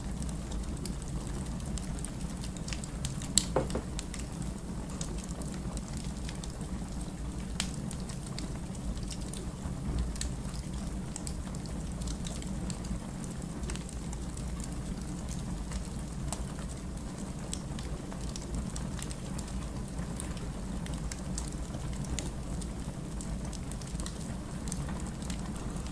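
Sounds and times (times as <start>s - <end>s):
low rumble of burning logs: 0.0s - 25.9s
wood fire crackling: 7.0s - 25.9s.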